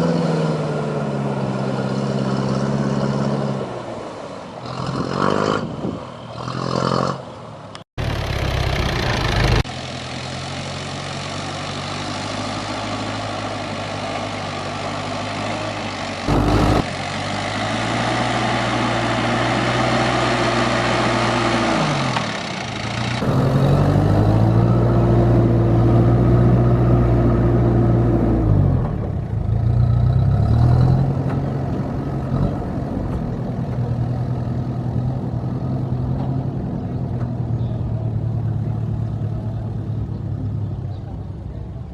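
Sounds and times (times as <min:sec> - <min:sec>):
truck engine revving: 0:08.0 - 0:09.7, 0:16.2 - 0:37.3.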